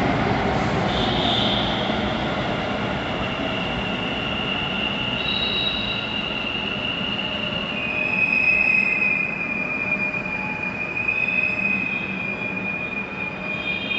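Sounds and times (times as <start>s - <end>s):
train rumble: 0.0s - 10.9s
high-pitched wheel squeal: 3.1s - 13.9s.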